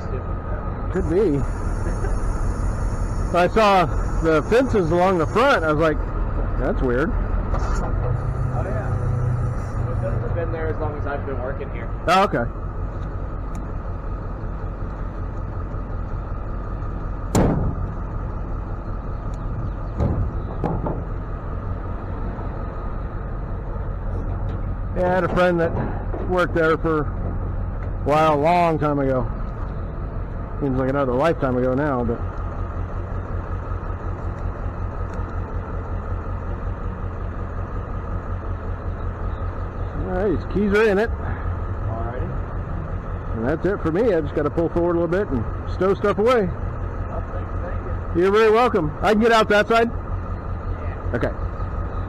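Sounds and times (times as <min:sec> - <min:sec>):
truck engine hum and road noise: 0:00.0 - 0:52.0
sharp knock: 0:17.3 - 0:17.8.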